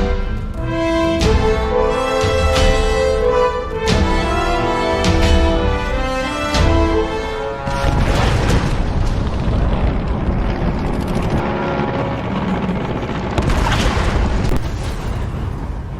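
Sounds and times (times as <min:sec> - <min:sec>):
heavy rumbling: 0:00.0 - 0:15.9
explosions booming: 0:07.6 - 0:11.4, 0:13.2 - 0:15.9.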